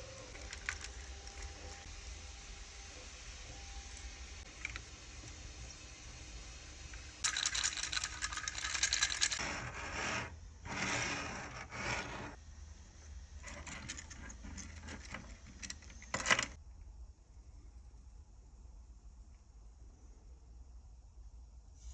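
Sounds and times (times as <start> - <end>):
plastic clattering and clicking: 13.5 - 16.6.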